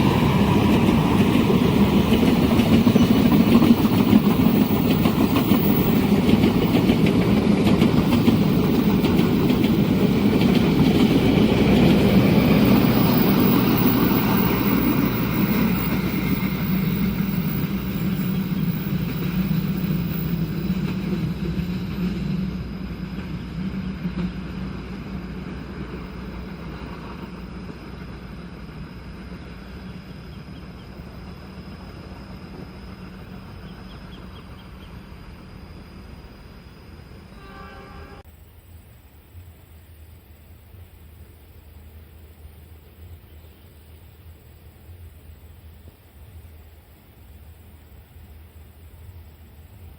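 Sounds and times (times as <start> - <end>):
train wheels on rail: 0.0 - 36.2.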